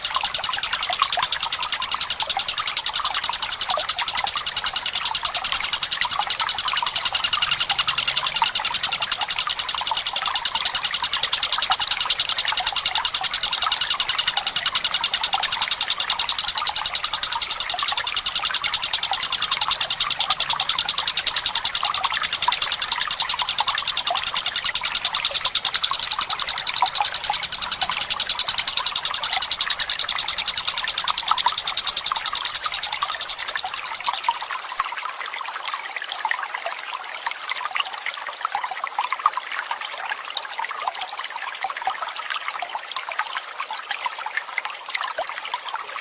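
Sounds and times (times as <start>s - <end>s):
kingfisher rolling trill: 0.0s - 34.0s
trickling water: 0.0s - 46.0s.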